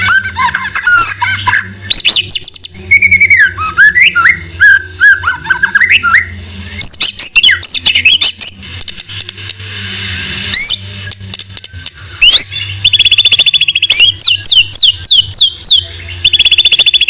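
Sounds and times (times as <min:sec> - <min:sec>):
steady low hum: 0:00.0 - 0:17.0
bird singing whistled notes: 0:01.8 - 0:08.6, 0:10.5 - 0:17.0
harsh hiss: 0:07.7 - 0:12.5.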